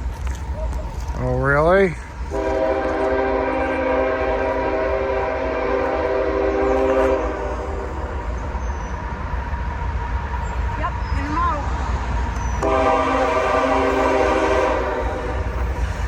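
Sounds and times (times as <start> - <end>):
locomotive horn: 2.3 - 8.2, 12.6 - 16.0.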